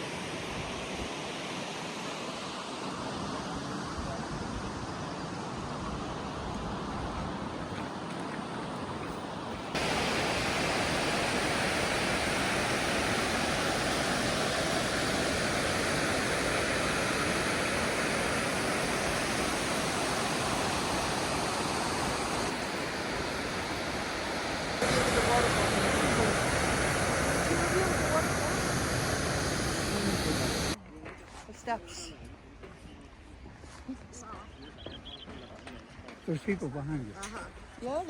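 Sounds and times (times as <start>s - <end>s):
waterfall roaring: 9.7s - 30.8s.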